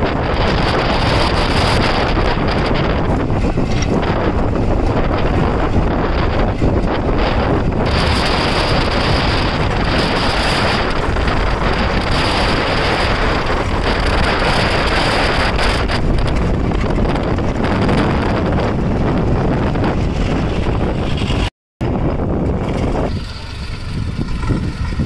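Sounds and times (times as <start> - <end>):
tractor engine running: 0.0 - 25.0
wind buffeting microphone: 0.0 - 25.0.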